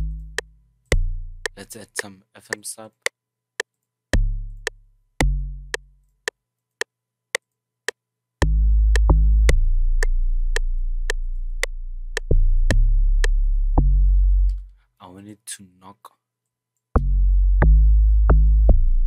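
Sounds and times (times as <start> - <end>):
deep synth bass notes: 0.0 - 1.6, 4.2 - 5.9, 8.4 - 14.7, 17.0 - 19.0.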